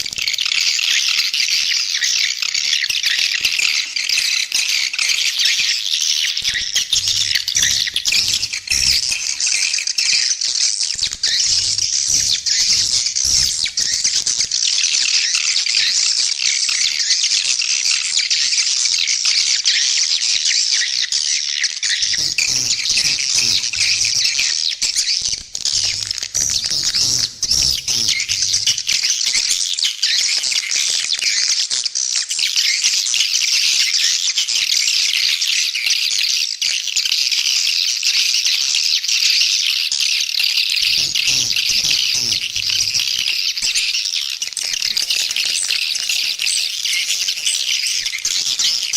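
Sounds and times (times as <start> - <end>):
swiftlets chattering: 3.4 - 15.2, 22.0 - 29.6, 40.8 - 48.9.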